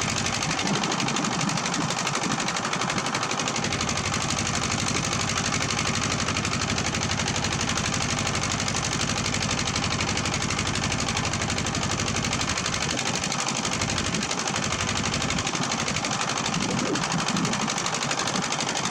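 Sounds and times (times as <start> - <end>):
diesel engine chugging: 0.0 - 18.9.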